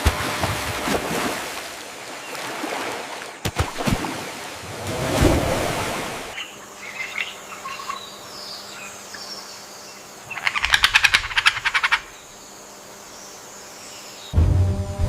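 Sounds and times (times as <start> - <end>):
rainforest ambience: 0.0 - 15.0
frog calling in pulsed rattle: 6.4 - 8.1, 10.3 - 12.2
faint bird chirps: 6.4 - 14.4.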